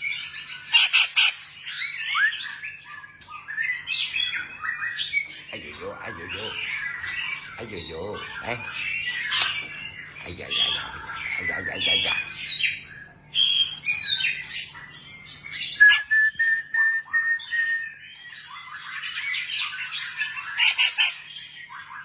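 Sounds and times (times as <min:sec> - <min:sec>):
bird singing whistled phrases: 0:01.7 - 0:20.6.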